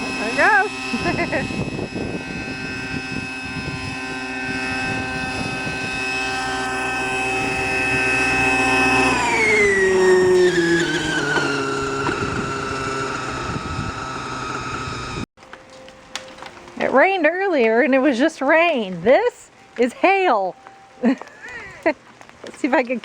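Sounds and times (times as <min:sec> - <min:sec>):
helicopter whine: 0:00.0 - 0:15.3.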